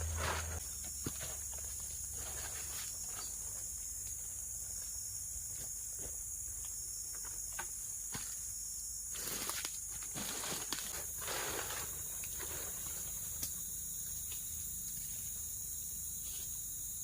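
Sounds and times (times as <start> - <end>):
rustling: 0.0 - 0.6, 9.2 - 13.2
insects chirping: 0.0 - 17.0.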